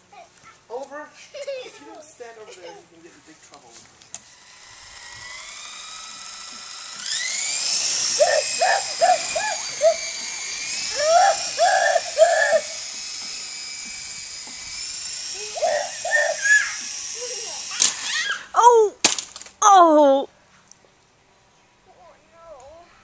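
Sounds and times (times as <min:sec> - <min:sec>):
toy helicopter motor whining: 0:04.1 - 0:18.8.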